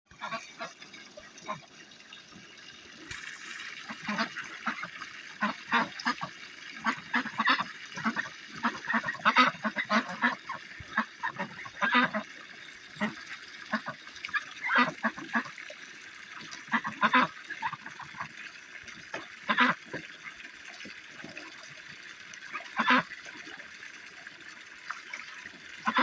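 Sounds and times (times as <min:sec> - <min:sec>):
ducks quacking: 0:03.9 - 0:12.3, 0:13.0 - 0:15.6, 0:16.7 - 0:18.3, 0:22.6 - 0:23.1, 0:25.8 - 0:26.0.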